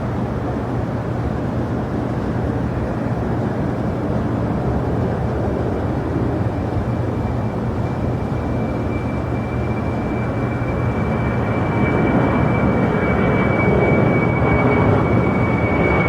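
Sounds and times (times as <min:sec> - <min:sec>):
jet engines rumbling: 0:00.0 - 0:16.0
faint high whine: 0:06.6 - 0:16.0.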